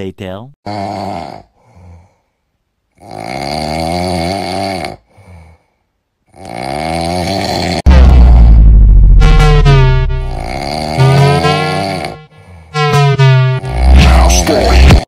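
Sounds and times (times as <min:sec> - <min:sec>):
person snoring: 0:00.7 - 0:02.2, 0:03.0 - 0:05.7, 0:06.3 - 0:07.9, 0:10.2 - 0:12.8, 0:13.6 - 0:15.0
loud low blast: 0:07.9 - 0:15.0
faint breath: 0:12.3 - 0:12.8.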